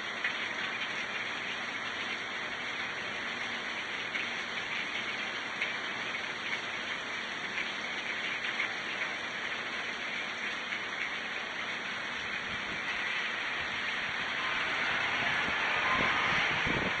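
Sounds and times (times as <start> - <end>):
car tyres hissing on wet road: 0.0 - 17.0
steady rain: 0.0 - 17.0.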